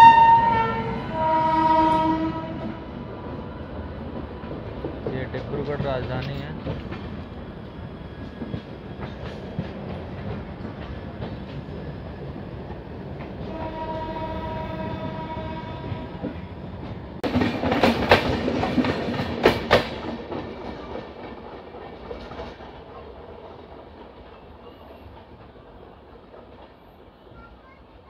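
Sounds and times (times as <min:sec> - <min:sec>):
train horn: 0:00.0 - 0:03.1, 0:13.4 - 0:16.3
train passing close by: 0:00.0 - 0:28.0
train wheels clattering on track: 0:01.1 - 0:28.0.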